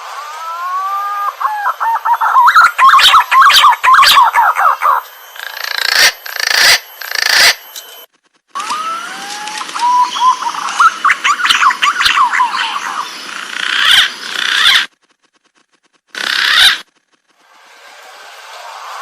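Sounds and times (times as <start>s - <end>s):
pigeon whistled calls: 0.4s - 5.1s, 8.6s - 13.1s
short noisy bursts: 1.3s - 19.0s.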